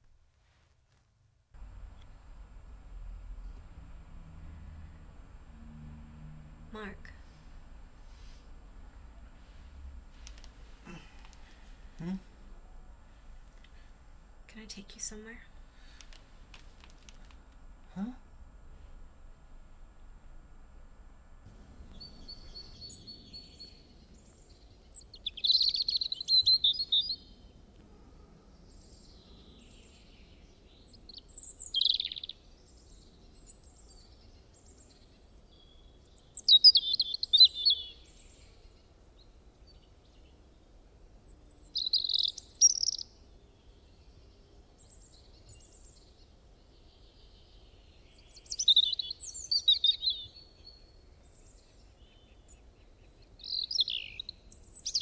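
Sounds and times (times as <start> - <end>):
faint low rumble: 1.5 - 31.8
songbird twittering: 21.9 - 27.4, 30.8 - 38.6, 41.4 - 43.7, 46.7 - 55.0.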